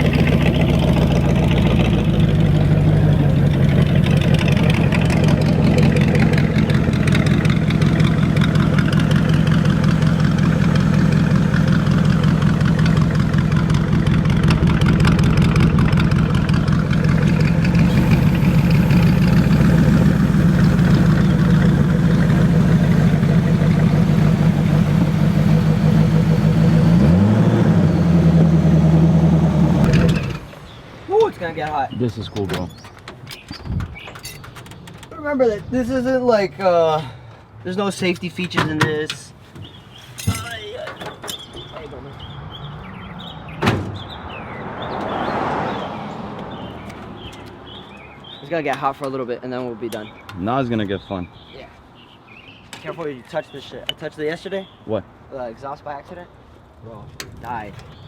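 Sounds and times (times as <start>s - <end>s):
car engine running loud: 0.0s - 30.8s.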